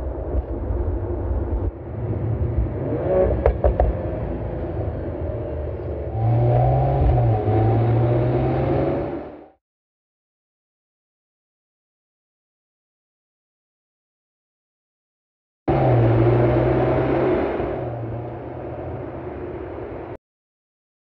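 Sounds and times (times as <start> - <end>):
engine exhaust cracks: 3.4 - 4.1.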